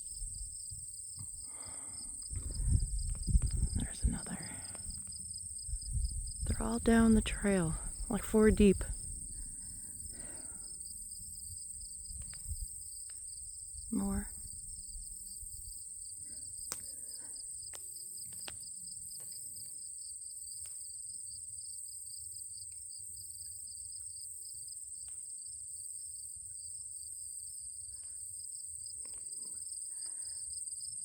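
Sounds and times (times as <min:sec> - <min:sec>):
crickets and insects trilling: 0:00.0 - 0:31.0
low rumble: 0:02.1 - 0:09.9
faint clicks: 0:16.6 - 0:18.6.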